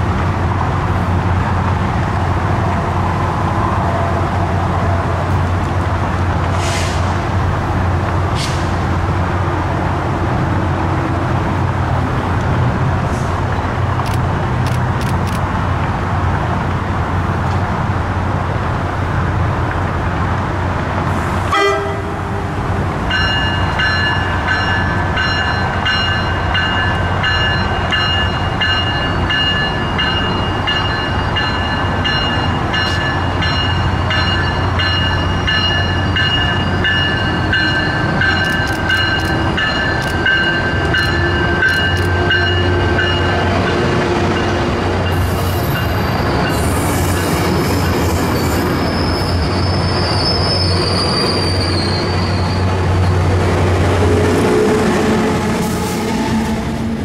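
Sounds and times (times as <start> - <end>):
train rolling past: 0.0 - 57.0
wheels squealing: 45.2 - 53.3.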